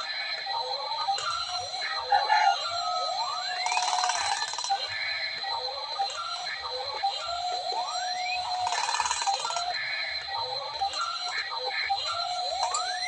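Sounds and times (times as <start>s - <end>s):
electronic rising whoops: 0.0s - 4.4s, 9.3s - 13.0s.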